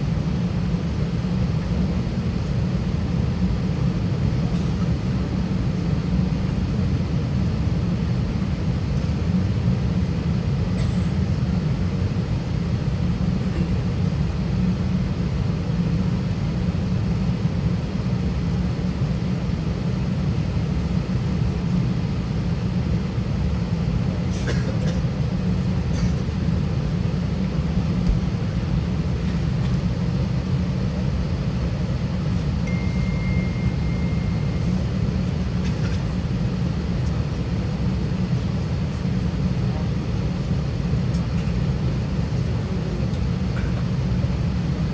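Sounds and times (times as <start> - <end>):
aircraft cabin rumble: 0.0 - 44.9
faint thin high tone: 32.6 - 34.9.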